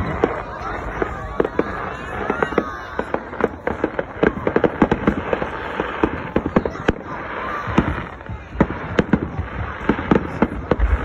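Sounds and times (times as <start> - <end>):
fireworks cracking and popping: 0.0 - 11.0.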